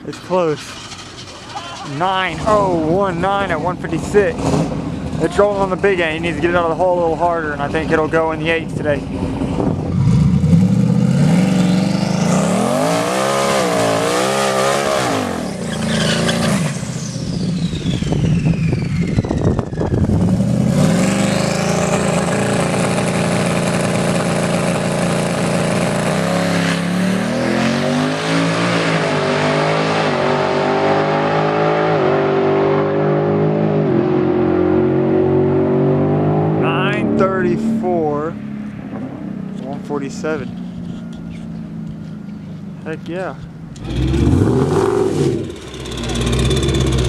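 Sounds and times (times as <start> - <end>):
drag car engines revving: 0.0 - 47.0
high whine: 15.2 - 27.5.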